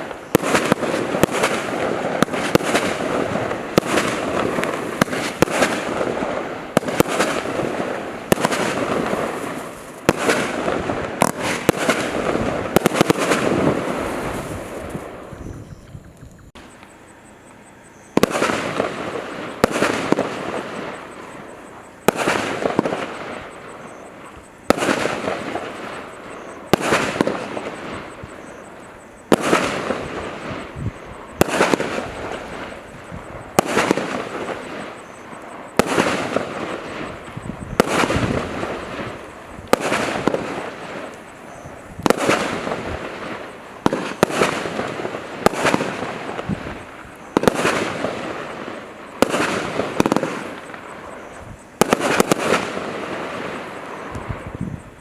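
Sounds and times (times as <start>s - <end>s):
firework bangs: 0.0s - 16.9s, 18.1s - 55.0s.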